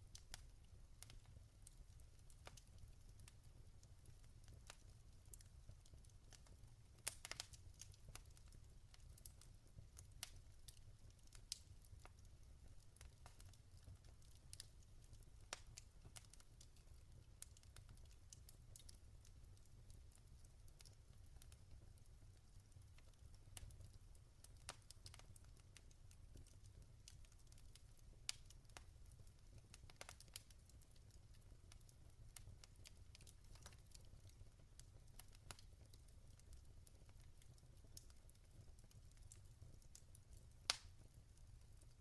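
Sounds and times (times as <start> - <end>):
logs crackling in fireplace: 0.0 - 42.0
sharp pops from fire: 6.3 - 9.5, 27.2 - 28.9, 29.7 - 30.6, 35.2 - 36.5, 40.7 - 41.0.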